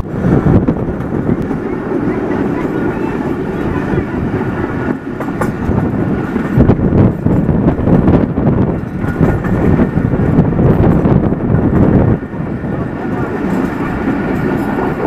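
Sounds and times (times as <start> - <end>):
train rumbling on rails: 0.0 - 15.0
wheels knocking: 0.0 - 15.0.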